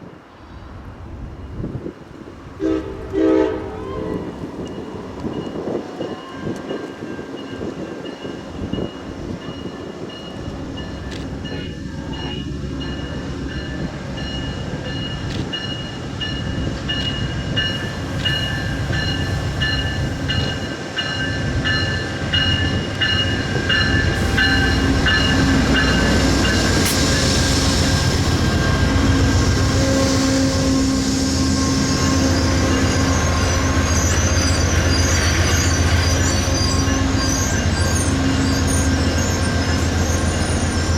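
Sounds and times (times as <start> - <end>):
locomotive engine drone: 21.4 - 40.9
high wheel squeal: 23.2 - 40.9.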